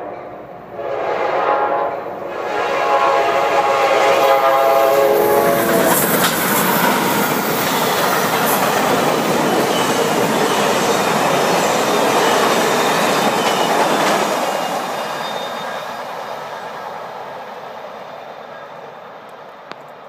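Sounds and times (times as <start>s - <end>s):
train cars rolling on rails: 2.4s - 20.0s.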